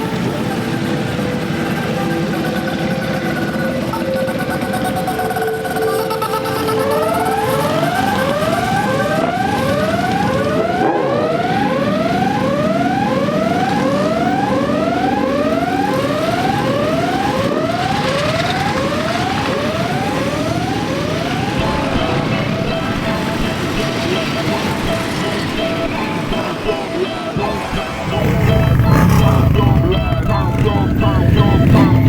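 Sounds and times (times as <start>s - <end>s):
siren rising sweeps: 0.0s - 32.0s
motorcycle engines running: 15.6s - 32.0s.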